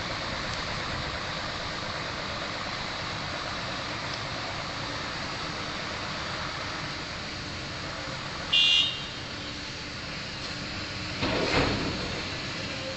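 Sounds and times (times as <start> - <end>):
heavy machinery engines running: 0.0 - 8.6, 9.2 - 12.9
high-pitched horn toot: 8.5 - 9.2.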